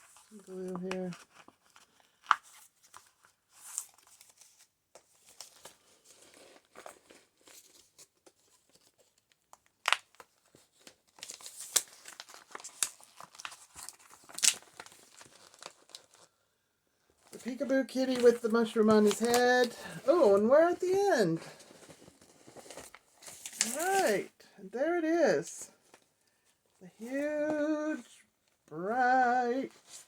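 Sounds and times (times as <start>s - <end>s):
sharp paper crackles: 0.0s - 16.3s, 17.3s - 24.3s
paper pages crinkling and turning: 0.0s - 16.4s, 17.2s - 24.4s, 25.0s - 30.0s.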